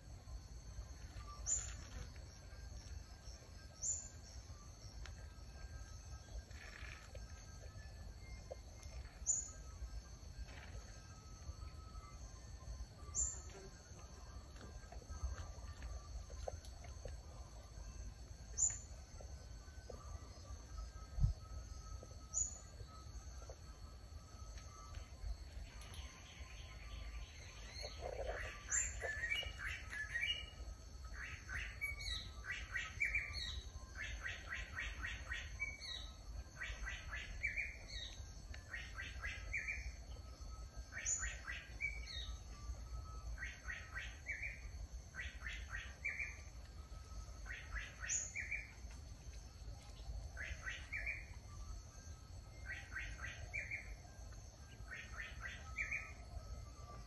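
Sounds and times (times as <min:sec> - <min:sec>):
steady high-pitched hum: 0:00.0 - 0:57.0
bird singing repeated phrase: 0:26.0 - 0:40.0.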